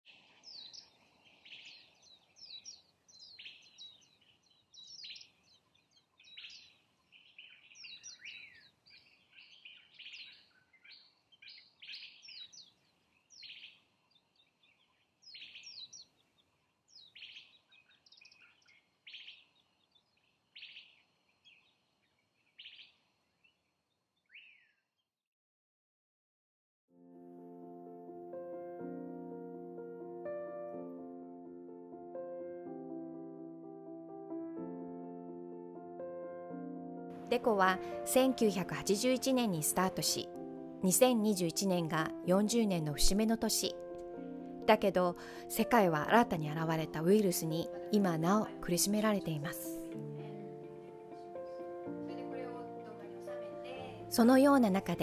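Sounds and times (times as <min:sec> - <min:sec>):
wild birds chirping: 0:00.1 - 0:25.1.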